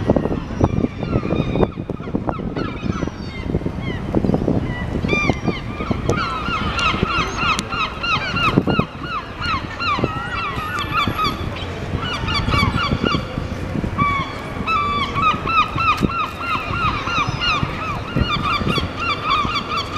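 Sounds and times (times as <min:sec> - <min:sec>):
gulls squawking: 0:04.6 - 0:19.9.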